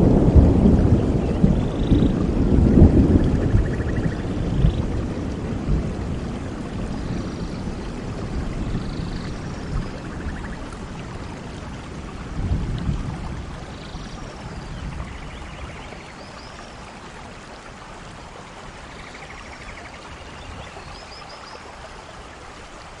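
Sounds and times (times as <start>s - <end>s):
low thunder rumble: 0.0s - 16.0s
steady rain falling: 0.0s - 23.0s.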